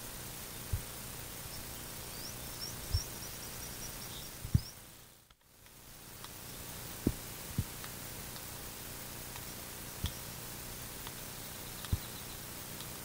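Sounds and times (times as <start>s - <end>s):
steady outdoor hiss: 0.0s - 13.0s
small bird chirping: 1.4s - 5.2s, 9.4s - 10.5s, 11.3s - 12.6s.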